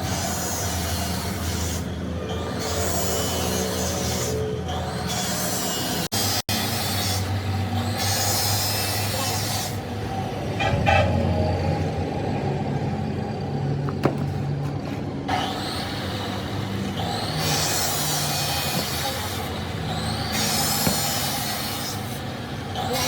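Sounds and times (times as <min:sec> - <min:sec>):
heavy engine running: 0:06.6 - 0:23.0.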